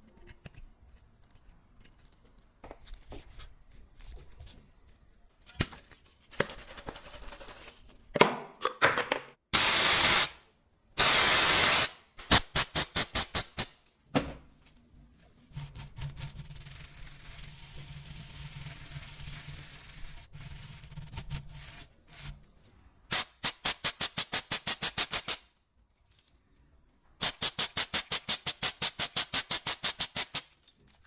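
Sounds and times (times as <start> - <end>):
loud hissing bursts: 9.6 - 10.4, 11.0 - 13.6.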